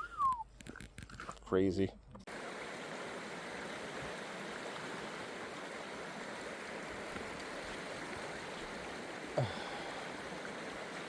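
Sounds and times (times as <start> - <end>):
river water rushing: 2.3 - 11.0.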